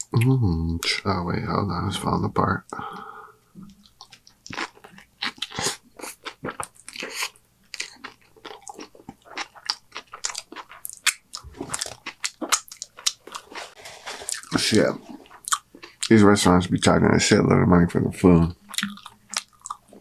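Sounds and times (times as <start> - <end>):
person chewing burger: 3.6 - 16.2, 18.6 - 20.0.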